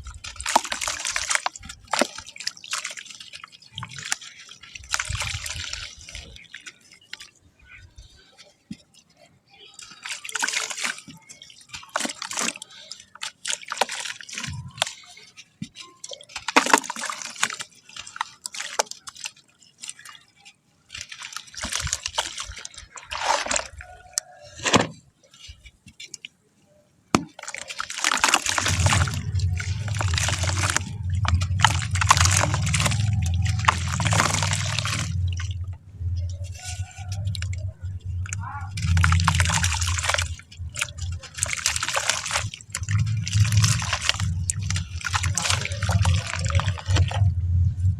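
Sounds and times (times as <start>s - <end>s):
wet sand crumbling into water: 0.0s - 3.0s, 21.5s - 24.9s, 27.2s - 47.3s
water drips and splashes: 0.0s - 26.4s, 27.1s - 47.9s
low hum: 28.5s - 47.9s.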